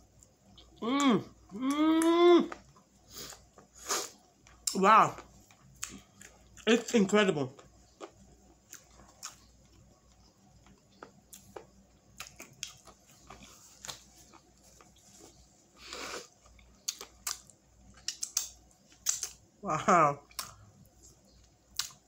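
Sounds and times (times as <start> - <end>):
faint chewing: 0.1 - 19.4, 20.2 - 22.0
soft rustle: 13.3 - 16.3.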